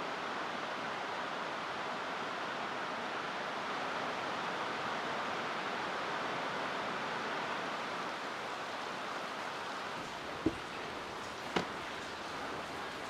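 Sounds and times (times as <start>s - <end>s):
short thump: 10.4s - 10.7s.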